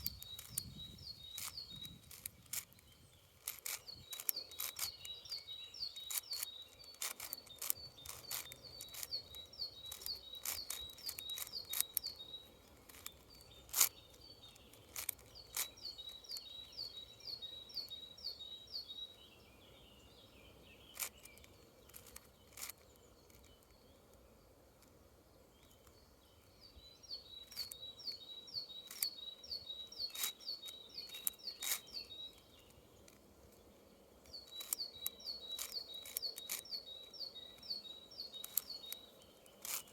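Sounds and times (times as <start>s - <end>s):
puzzle cube plastic clicks: 0.0s - 16.8s, 20.9s - 23.8s, 30.0s - 33.3s, 34.3s - 39.9s
bird singing high chirps: 0.0s - 24.5s, 25.4s - 39.9s.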